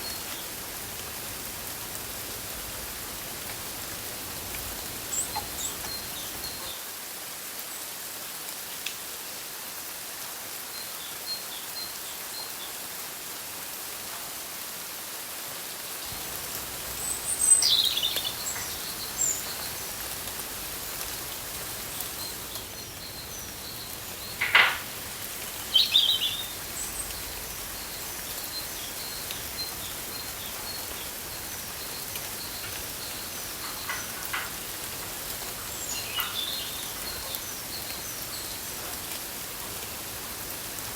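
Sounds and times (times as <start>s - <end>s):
steady hiss: 0.0s - 12.4s, 13.0s - 40.9s
birds chirping and calling: 4.7s - 6.7s, 16.8s - 20.2s, 21.0s - 38.6s.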